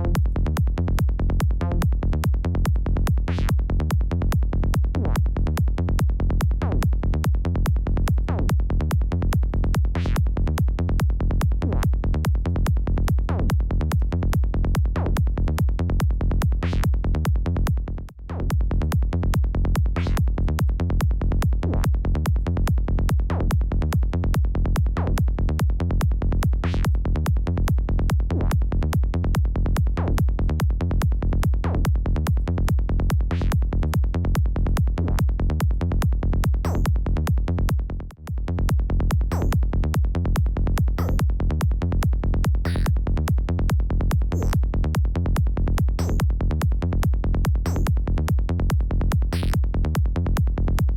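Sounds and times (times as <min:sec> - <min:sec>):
psytrance synth bassline: 0:00.0 - 0:50.9
drum machine beat: 0:38.4 - 0:50.9.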